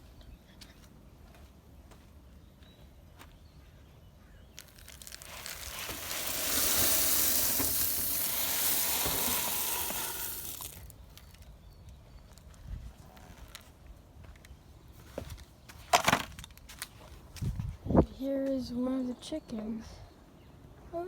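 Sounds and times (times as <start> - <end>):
crushed grain pouring: 4.6 - 11.0.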